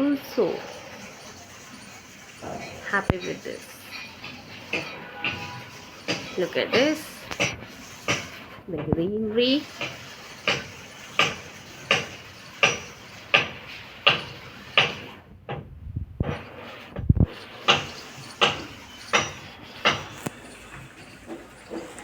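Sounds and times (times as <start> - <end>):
sharp repeating knock: 4.7 - 8.4, 9.6 - 15.2, 17.3 - 20.3.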